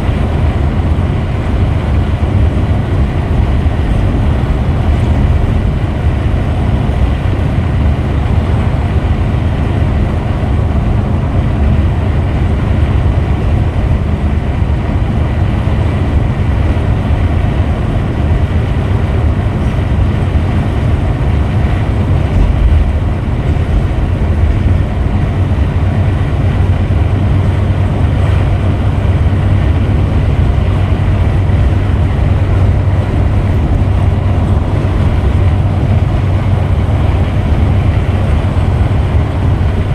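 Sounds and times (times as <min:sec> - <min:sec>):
coach engine and road noise: 0:00.0 - 0:39.9.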